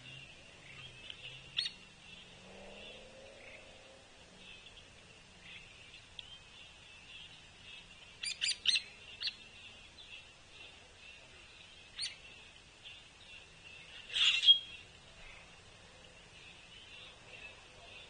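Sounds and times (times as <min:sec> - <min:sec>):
distant birds chorus: 0:00.0 - 0:18.0
short sharp bird calls: 0:14.0 - 0:15.5.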